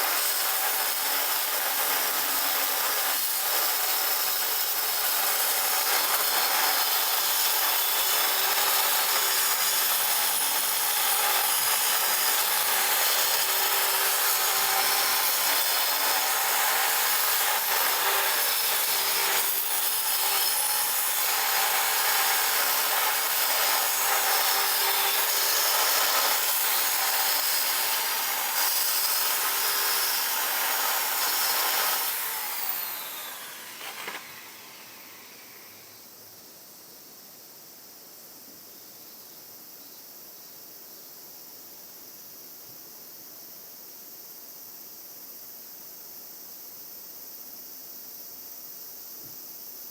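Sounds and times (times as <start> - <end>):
power tool grinding: 0.0 - 35.9.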